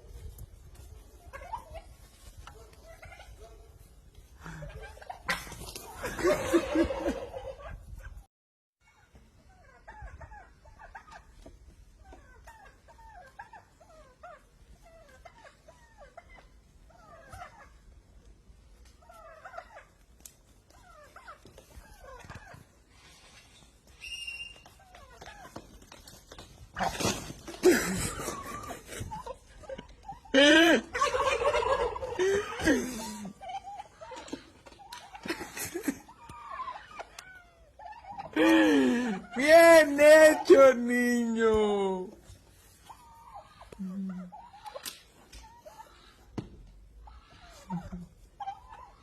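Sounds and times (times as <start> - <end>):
turkeys yelping: 0.1 - 8.2, 8.8 - 40.7, 42.2 - 49.0.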